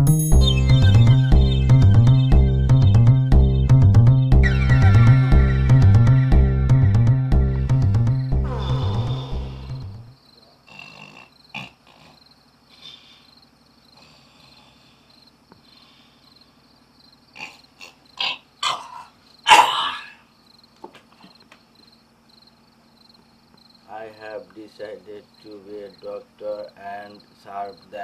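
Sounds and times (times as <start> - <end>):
crickets chirping: 7.3 - 28.0.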